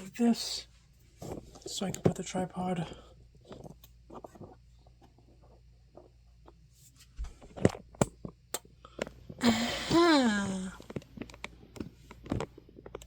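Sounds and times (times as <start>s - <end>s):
shuffling and scraping: 0.7s - 7.9s
person speaking: 1.6s - 3.0s, 9.4s - 10.8s.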